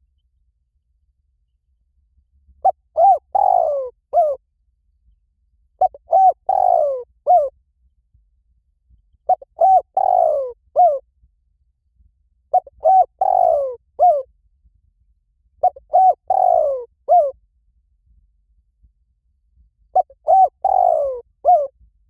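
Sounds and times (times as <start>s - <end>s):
dove cooing: 2.6s - 4.4s, 5.8s - 7.5s, 9.3s - 11.0s, 12.5s - 14.2s, 15.6s - 17.4s, 20.0s - 21.7s.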